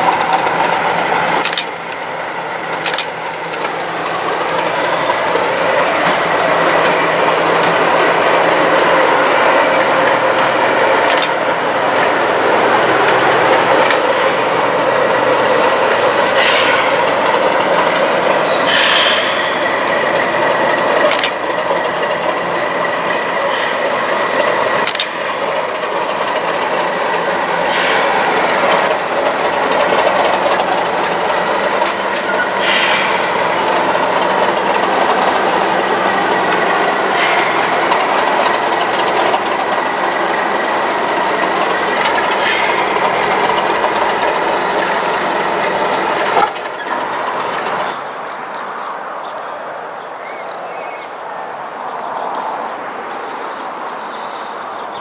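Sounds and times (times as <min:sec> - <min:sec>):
train wheels rumbling: 0:00.0 - 0:55.0
wheels clicking over rail joints: 0:00.0 - 0:55.0.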